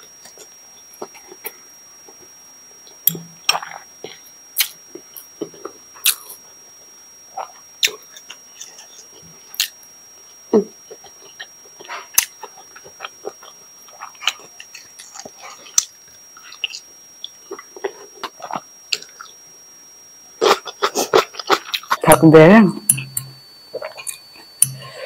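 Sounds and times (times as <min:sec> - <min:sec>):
chewing and wet mouth crackles: 0:10.8 - 0:19.4, 0:20.4 - 0:22.0
faint high-pitched tone: 0:21.9 - 0:25.0.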